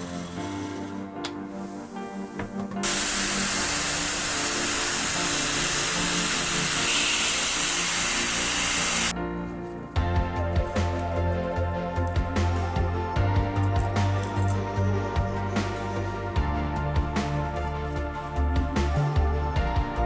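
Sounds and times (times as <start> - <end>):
background music: 0.0 - 20.0
spray paint hissing: 2.8 - 9.1.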